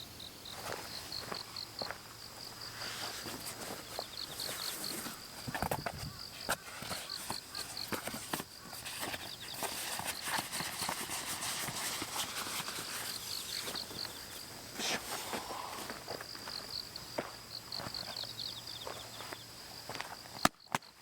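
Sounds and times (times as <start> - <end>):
insect chirping: 0.0 - 21.0
camping gear being handled: 2.6 - 16.0.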